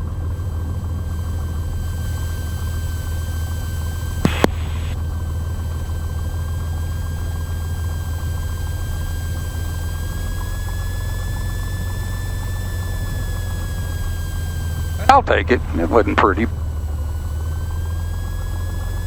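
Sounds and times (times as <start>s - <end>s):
airplane engine low drone: 0.0s - 19.0s
thin high whine: 1.2s - 5.0s.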